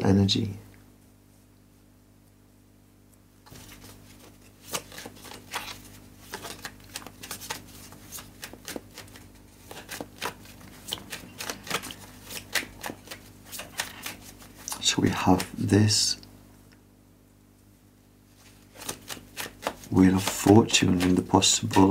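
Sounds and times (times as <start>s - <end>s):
cards being shuffled: 3.4s - 15.7s, 18.3s - 21.9s.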